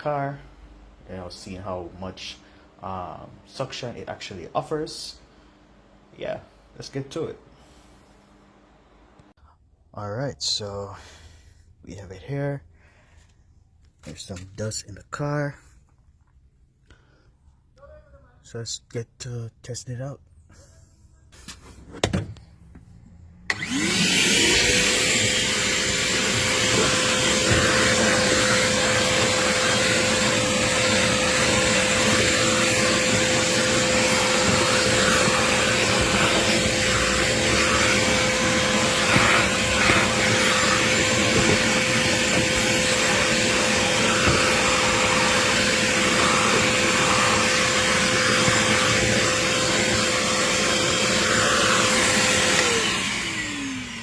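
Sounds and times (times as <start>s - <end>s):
shop vacuum motor whining: 23.5s - 54.0s.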